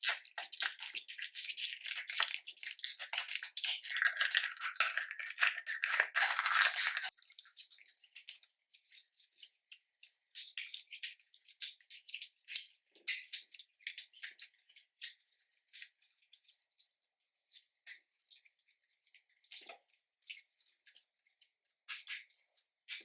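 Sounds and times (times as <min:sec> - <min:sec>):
slime squeezed with sticky crackling: 0:00.0 - 0:08.4.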